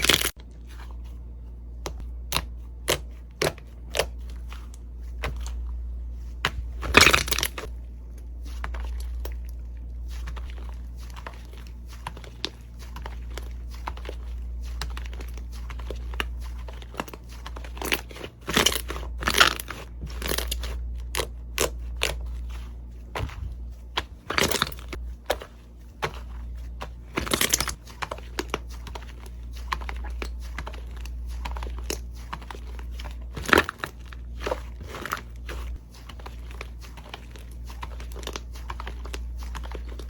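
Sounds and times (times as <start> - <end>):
slime clicking and crackling: 6.8 - 22.5, 23.9 - 40.0.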